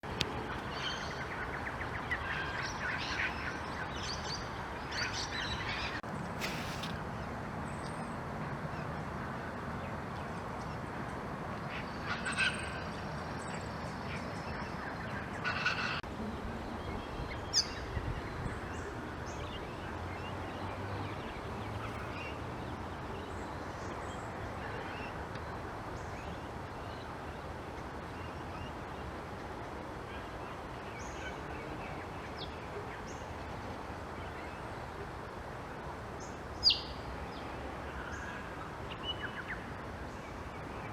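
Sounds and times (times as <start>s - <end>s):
steady background hiss: 0.1s - 40.9s
wild birds calling: 13.6s - 16.1s.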